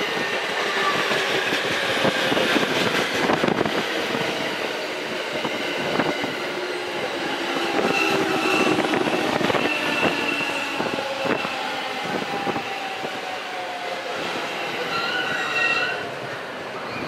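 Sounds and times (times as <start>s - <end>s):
train wheels squealing: 6.0s - 17.0s.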